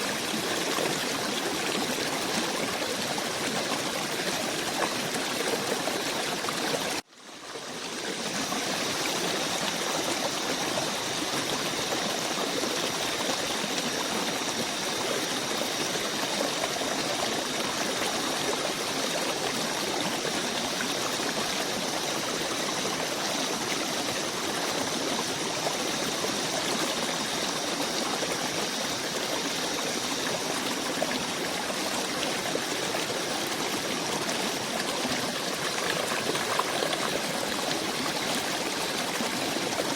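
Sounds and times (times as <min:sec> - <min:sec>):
rushing stream water: 0:00.0 - 0:39.9.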